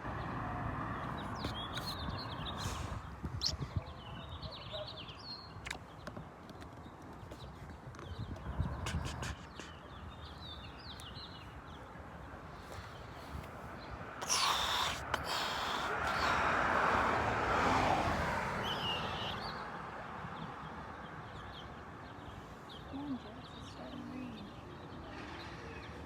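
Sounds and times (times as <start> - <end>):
birds chirping: 0.1 - 16.6, 20.3 - 26.0
vehicle passing: 14.5 - 19.9.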